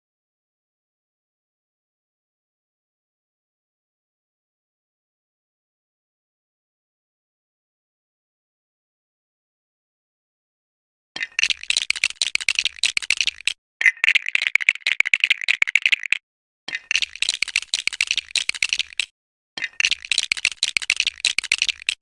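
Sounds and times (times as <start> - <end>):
plastic toy bricks clattering: 13.8 - 16.2.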